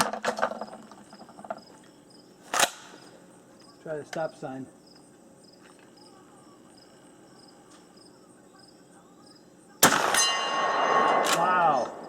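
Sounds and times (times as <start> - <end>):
crickets chirping: 0.1 - 12.0
loud shotgun shot: 9.8 - 12.0
steel target ringing: 10.0 - 12.0.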